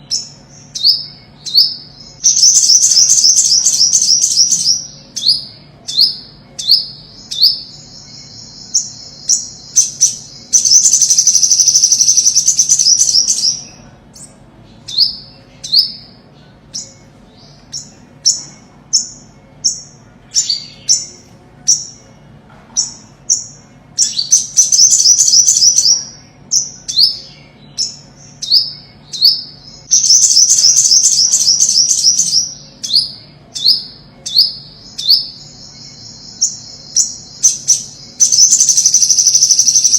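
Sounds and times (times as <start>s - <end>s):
fast high bird trill: 0.0s - 13.8s, 22.9s - 39.9s
bird chirping: 0.0s - 39.9s.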